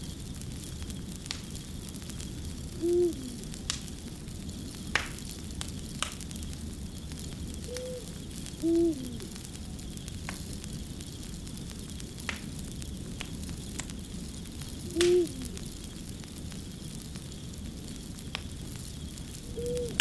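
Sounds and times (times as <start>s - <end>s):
fire crackling and popping: 0.0s - 20.0s
owl hooting: 2.7s - 3.6s, 7.6s - 9.5s, 14.8s - 15.7s, 19.5s - 20.0s.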